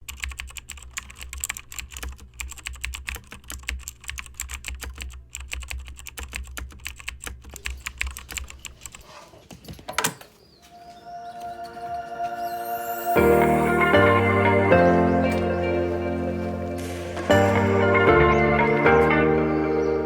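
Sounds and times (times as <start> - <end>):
dense irregular clicking: 0.0 - 9.1.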